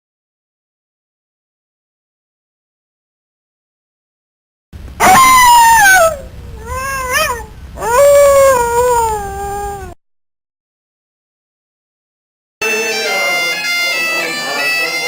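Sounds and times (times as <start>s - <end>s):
animal howling: 5.0s - 10.0s.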